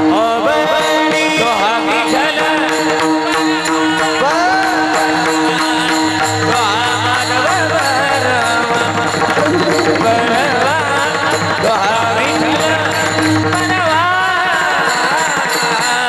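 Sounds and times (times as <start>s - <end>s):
voices singing devotional song: 0.0s - 16.0s
held drone notes: 4.8s - 15.3s
hand drum playing: 8.6s - 14.2s.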